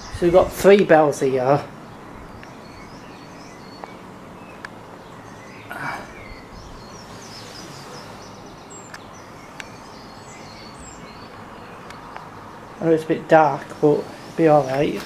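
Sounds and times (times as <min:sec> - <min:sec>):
birds chirping: 0:00.0 - 0:15.0
steady background hiss: 0:00.0 - 0:15.0
faint sharp clicks: 0:08.8 - 0:09.8, 0:11.8 - 0:12.3
short rustle: 0:12.9 - 0:15.0.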